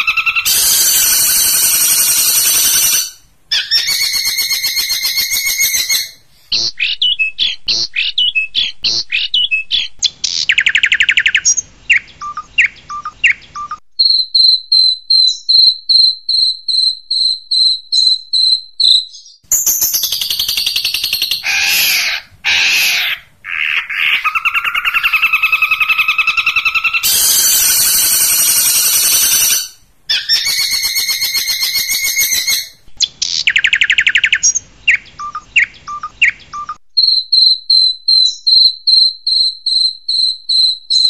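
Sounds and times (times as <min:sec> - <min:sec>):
bird high whistled notes: 0:00.0 - 0:07.6, 0:10.5 - 0:23.0, 0:24.3 - 0:32.8
bird buzzy chattering: 0:00.0 - 0:13.8, 0:19.5 - 0:37.2
bird descending calls and trill: 0:00.0 - 0:41.0.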